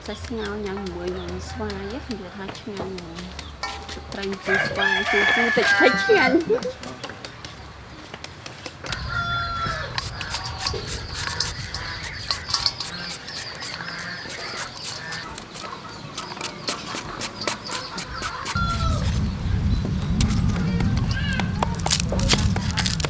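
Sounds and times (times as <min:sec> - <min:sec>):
chickens clucking: 0:00.0 - 0:23.0
rooster crowing: 0:04.3 - 0:06.8, 0:08.9 - 0:16.0, 0:17.2 - 0:19.4.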